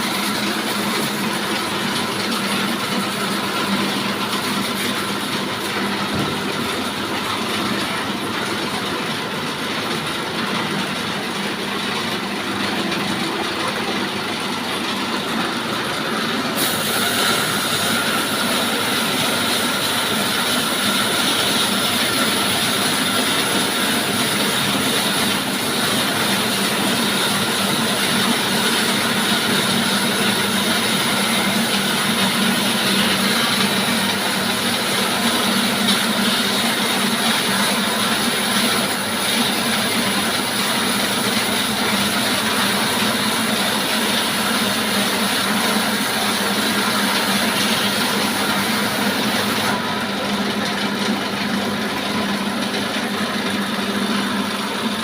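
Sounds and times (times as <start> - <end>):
sawmill saw cutting timber: 12.4 - 50.0.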